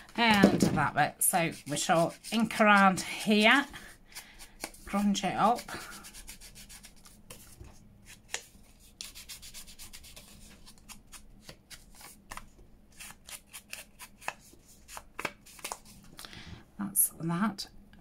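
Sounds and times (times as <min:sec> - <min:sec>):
ink pad scuffing paper: 0:00.3 - 0:03.7.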